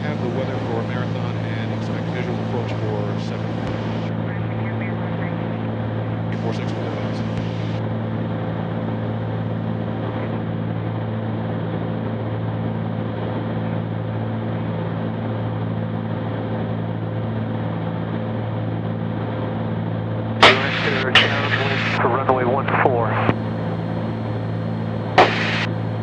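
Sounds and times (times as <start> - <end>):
airplane propeller engines droning: 0.0 - 26.0
person speaking: 20.4 - 23.3.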